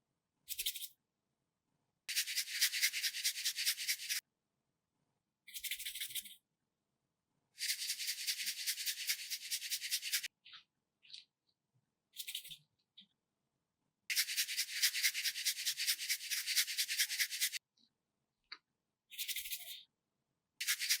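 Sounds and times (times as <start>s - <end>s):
scratchy rubbing strokes: 2.1s - 4.2s, 7.6s - 10.3s, 14.1s - 17.6s, 20.6s - 21.0s.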